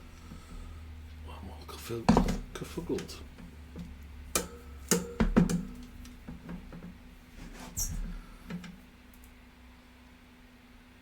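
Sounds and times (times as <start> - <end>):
faint steady hum: 0.0 - 11.0
tools knocking on metal: 3.8 - 7.0.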